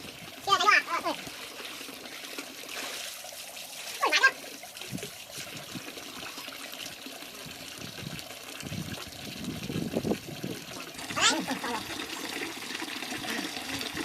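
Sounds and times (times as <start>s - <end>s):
water trickling: 0.0s - 14.0s.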